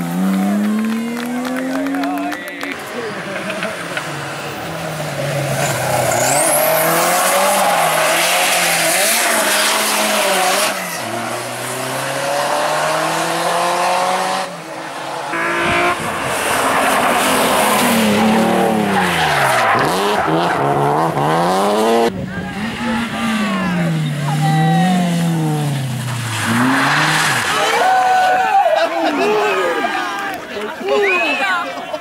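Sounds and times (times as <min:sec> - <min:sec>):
rally car engine revving: 0:00.0 - 0:27.7.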